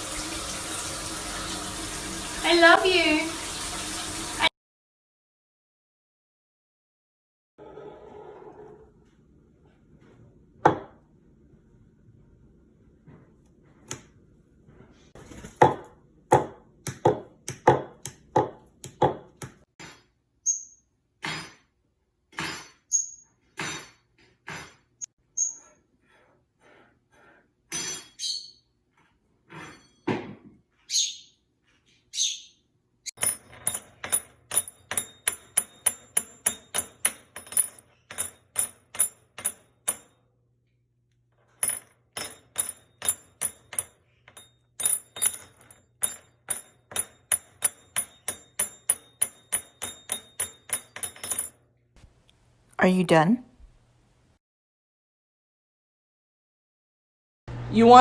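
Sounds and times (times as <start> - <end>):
pet bird chirping and whistling: 28.2 - 28.6, 30.9 - 31.3, 32.1 - 32.6.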